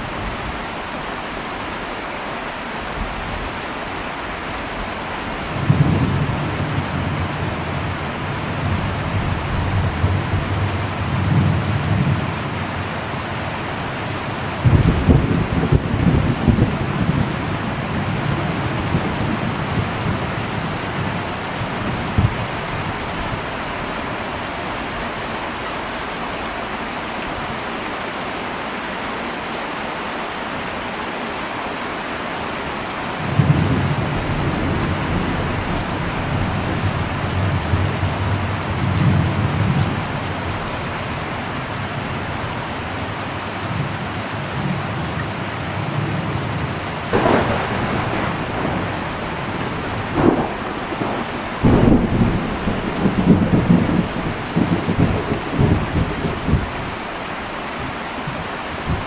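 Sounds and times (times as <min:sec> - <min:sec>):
heavy rain on a metal roof: 0:00.0 - 0:59.0
thunder rolling: 0:05.5 - 0:13.2, 0:14.5 - 0:23.6, 0:33.3 - 0:41.4, 0:46.0 - 0:57.0.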